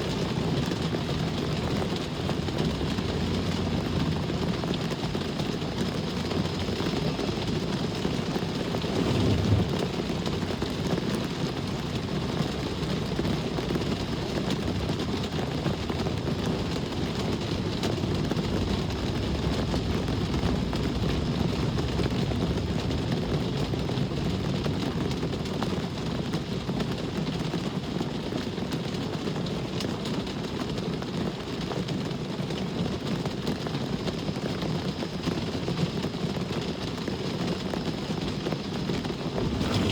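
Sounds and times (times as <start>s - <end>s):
road traffic rumble: 0.0s - 25.6s, 37.9s - 39.9s
rain hiss: 38.2s - 39.9s.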